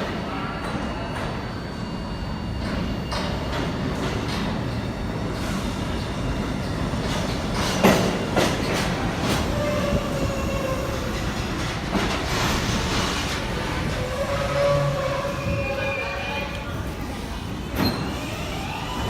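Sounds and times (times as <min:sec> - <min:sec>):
subway train rumble: 0:00.0 - 0:19.0
faint wheel squeal: 0:14.0 - 0:16.8.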